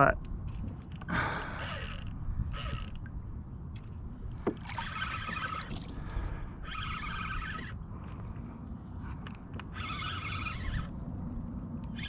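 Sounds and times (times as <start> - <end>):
wind and water rumble: 0.0 - 12.0
fishing reel cranking: 0.6 - 3.0, 4.8 - 5.8, 6.6 - 7.8, 9.6 - 10.9.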